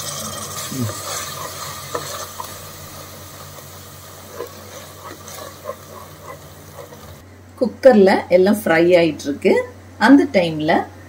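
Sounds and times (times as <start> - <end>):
masala sizzling in a pot: 0.0 - 7.2.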